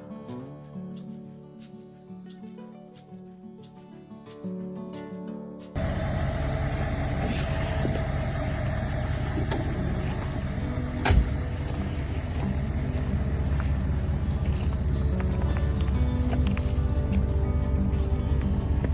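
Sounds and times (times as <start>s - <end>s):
music: 0.0s - 5.8s, 10.9s - 18.9s
car engine running: 5.8s - 18.9s.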